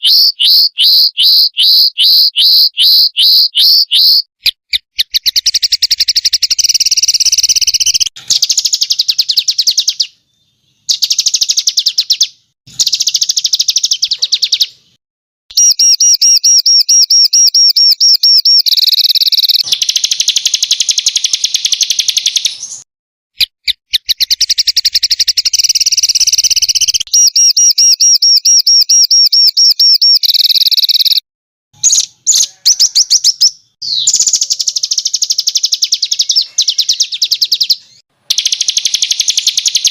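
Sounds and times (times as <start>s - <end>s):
songbirds trilling and chattering: 31.8s - 39.9s.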